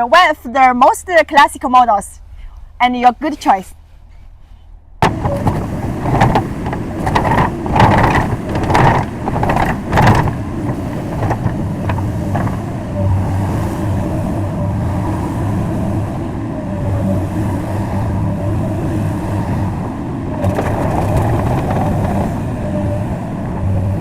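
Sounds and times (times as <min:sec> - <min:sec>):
excavator diesel engine running: 0:05.0 - 0:24.0.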